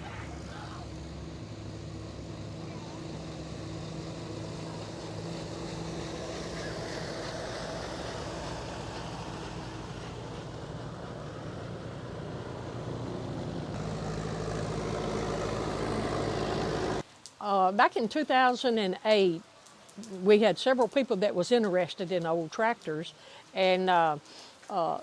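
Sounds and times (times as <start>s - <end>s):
tractor engines running: 0.0s - 17.0s.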